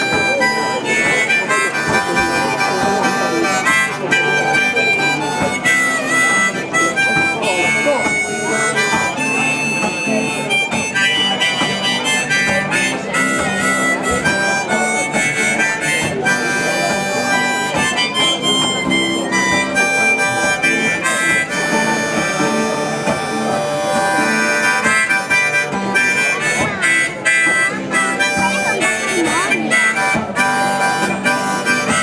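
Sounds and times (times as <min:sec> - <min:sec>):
guitar accompaniment: 0:00.0 - 0:32.0
harmonica melody: 0:00.0 - 0:32.0.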